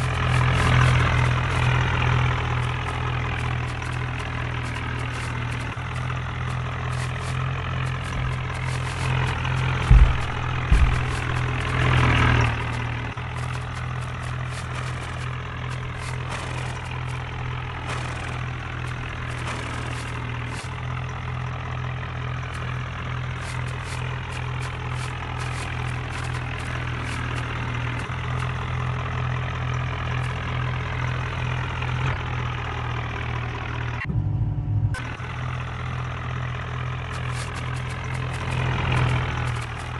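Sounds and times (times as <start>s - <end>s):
tractor diesel engine idling: 0.0s - 39.9s
heavy thumps: 6.4s - 20.8s.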